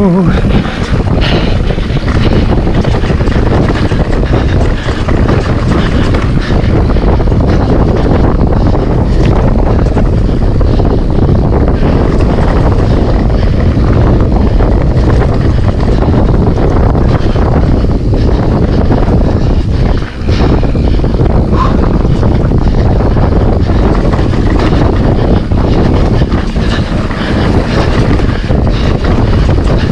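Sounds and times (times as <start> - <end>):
wind buffeting microphone: 0.0 - 29.9
mountain bike rattling on trail: 0.3 - 29.9.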